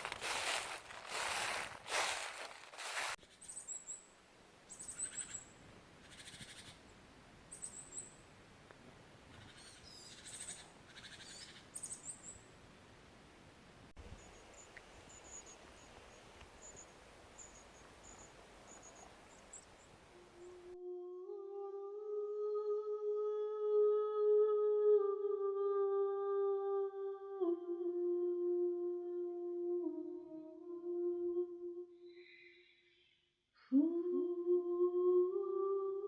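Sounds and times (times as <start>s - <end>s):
footsteps crunching dry leaves: 0.0s - 3.2s
songbird chirping: 0.0s - 8.4s, 9.3s - 13.0s, 14.1s - 20.9s.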